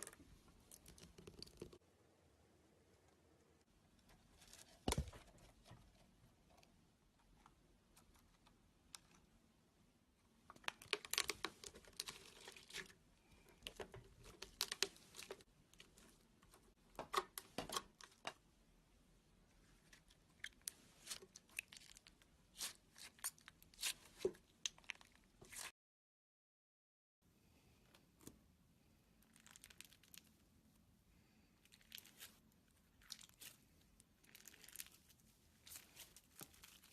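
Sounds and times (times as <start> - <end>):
slime crackling and popping: 10.6 - 12.7.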